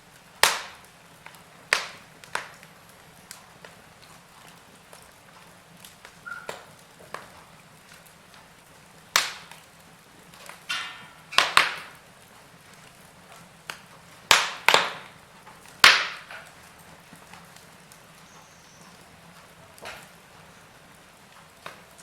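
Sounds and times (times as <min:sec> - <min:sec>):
wood fire crackling: 0:00.0 - 0:22.0
loud sharp fire pops: 0:00.2 - 0:04.2, 0:05.8 - 0:08.2, 0:09.0 - 0:19.1, 0:19.8 - 0:20.2.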